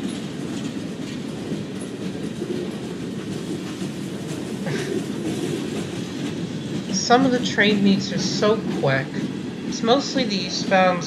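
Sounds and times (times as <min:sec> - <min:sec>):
freight train rumbling past: 0:00.0 - 0:11.0
wheels clacking over rails: 0:00.0 - 0:11.0.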